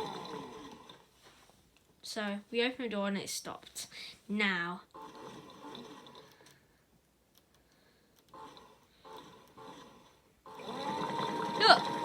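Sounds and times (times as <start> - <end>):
toy clicks and whirs: 5.0 - 6.6, 8.2 - 12.0.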